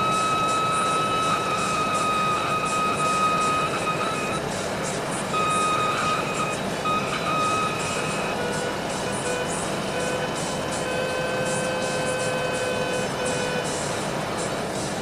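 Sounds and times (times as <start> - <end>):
high steady tone: 0.0 - 14.9
engine noise: 0.0 - 15.0.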